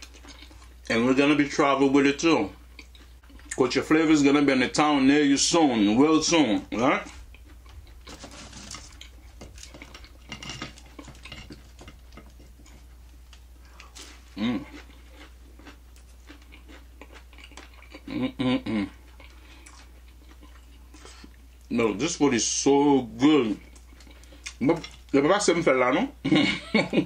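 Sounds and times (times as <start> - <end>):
person crunching fried food: 7.2 - 21.6
person humming: 14.4 - 14.7, 18.1 - 19.0.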